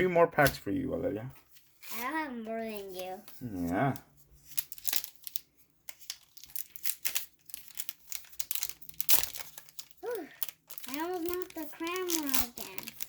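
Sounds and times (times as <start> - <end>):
card pack wrapper tearing: 4.5 - 13.0.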